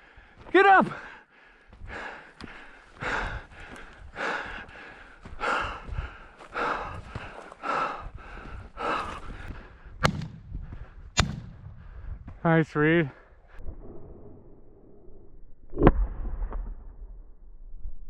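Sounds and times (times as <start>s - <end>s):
person breathing hard: 0.0s - 11.1s, 11.7s - 12.4s
shotgun shots: 10.0s - 10.4s, 11.2s - 11.6s.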